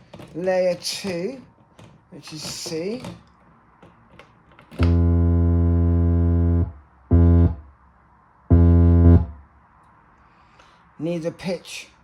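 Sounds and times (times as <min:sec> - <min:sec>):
low buzzy synthesizer notes: 0:04.8 - 0:07.7, 0:08.5 - 0:09.4.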